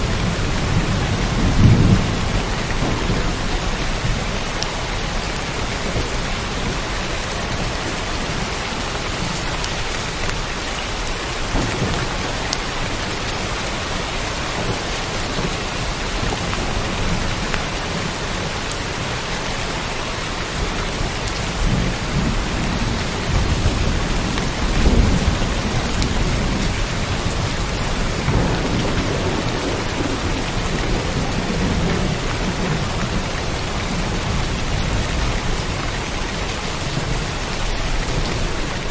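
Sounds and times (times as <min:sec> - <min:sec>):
thunder rumbling: 0:00.0 - 0:10.2, 0:10.9 - 0:19.3, 0:20.5 - 0:38.9
heavy rain: 0:00.0 - 0:38.9.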